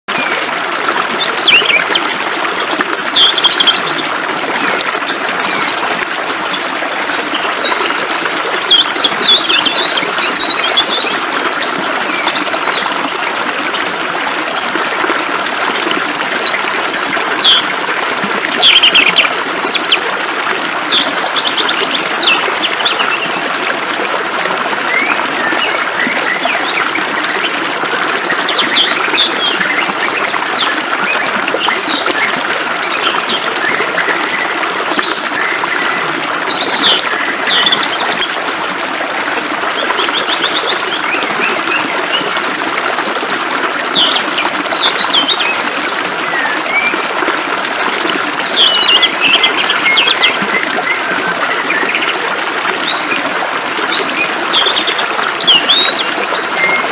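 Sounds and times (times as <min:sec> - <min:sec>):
trickle of flowing water: 0:00.1 - 0:56.9
small birds chirping and singing: 0:00.2 - 0:14.2, 0:16.4 - 0:20.0, 0:27.4 - 0:30.8, 0:48.3 - 0:52.2.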